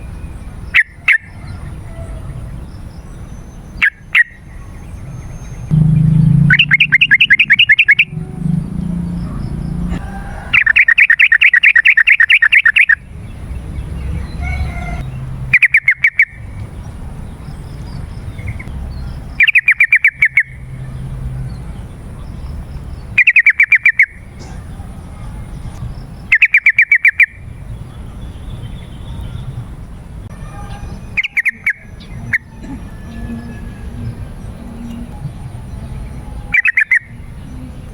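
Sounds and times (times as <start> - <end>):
bulbul singing rapid notes: 5.7 - 13.0.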